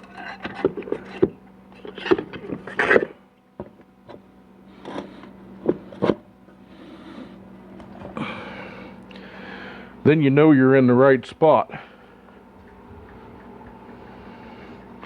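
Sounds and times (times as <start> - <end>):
metal scraping: 0.0 - 3.1.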